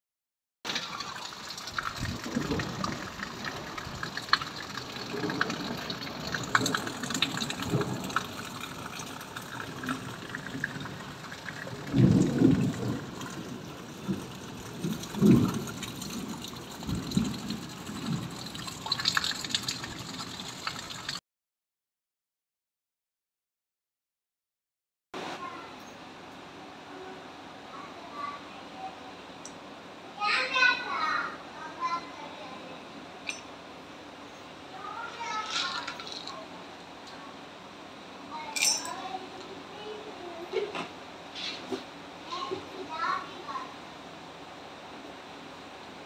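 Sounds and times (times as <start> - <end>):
rain on a tiled roof: 0.7 - 21.2, 25.2 - 46.0.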